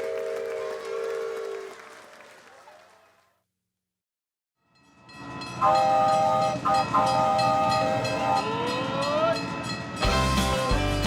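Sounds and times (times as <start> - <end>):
rising whistle: 5.6 - 9.4
train horn: 5.6 - 9.4.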